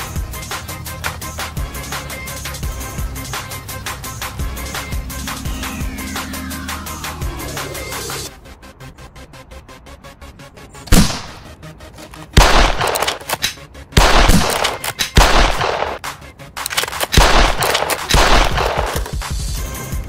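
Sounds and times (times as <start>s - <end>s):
loud gunfire-like blasts: 10.9s - 11.4s, 12.4s - 13.2s, 14.0s - 16.0s, 17.2s - 19.0s.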